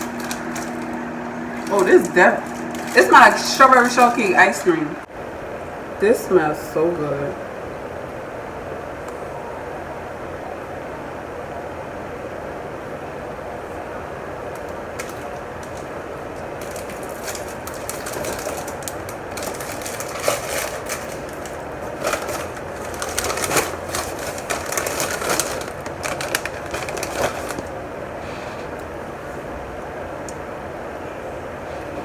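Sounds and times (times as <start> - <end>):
cookie wrapper crackling: 0.0 - 4.7, 14.6 - 27.8
steady background noise: 0.0 - 32.0.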